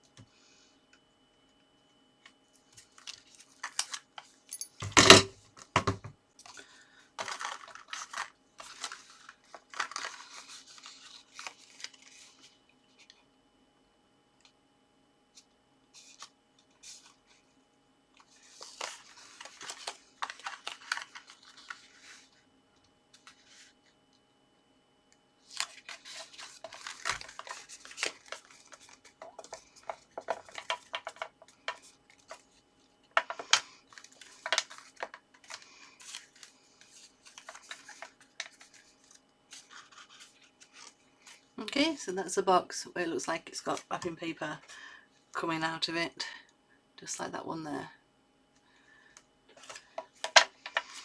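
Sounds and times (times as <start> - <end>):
paper card rustling and crinkling: 2.2 - 4.5, 6.4 - 13.2, 15.3 - 17.5, 18.2 - 22.5, 23.1 - 24.0, 25.4 - 41.6, 49.5 - 51.0.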